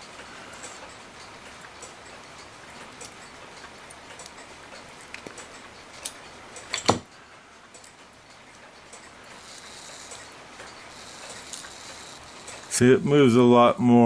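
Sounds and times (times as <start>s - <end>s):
small metallic clicks: 7.7s - 12.8s.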